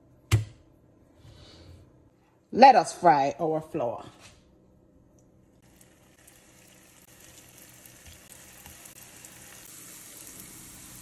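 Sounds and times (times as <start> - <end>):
dough sizzling in hot oil: 5.6 - 11.0.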